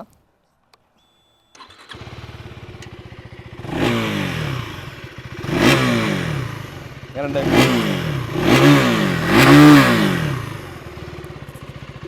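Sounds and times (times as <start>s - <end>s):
electric starter whine: 1.0s - 2.9s
motorcycle engine idling and revving: 1.6s - 12.0s.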